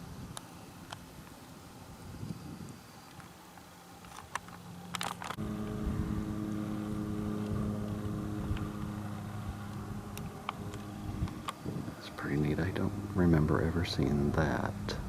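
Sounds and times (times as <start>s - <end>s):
steady motor hum: 1.4s - 15.0s.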